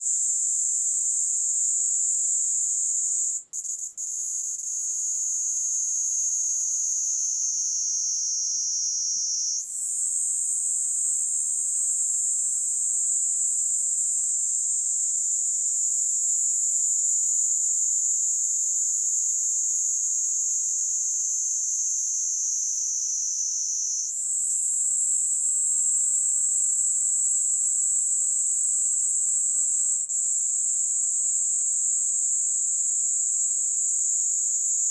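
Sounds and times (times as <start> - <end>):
cicada buzzing: 21.2 - 24.1.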